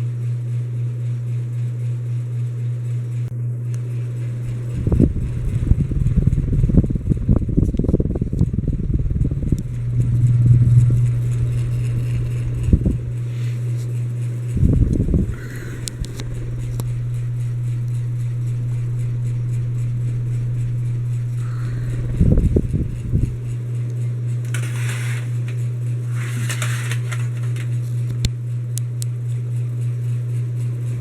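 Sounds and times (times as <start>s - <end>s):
ceiling fan motor humming: 0.0s - 31.0s
low thumps: 4.5s - 23.7s.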